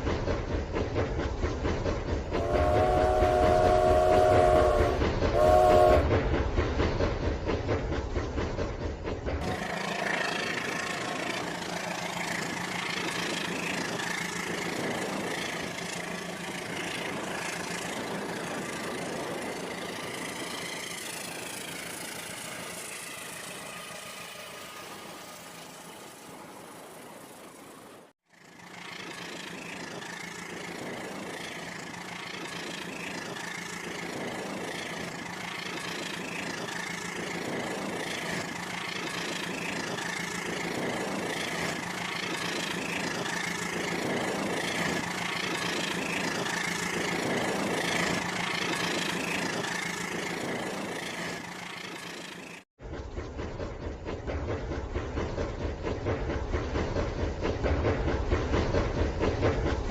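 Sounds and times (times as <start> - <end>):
toy train motor hum: 9.4 - 52.6
low rumbling running sound: 24.9 - 59.9.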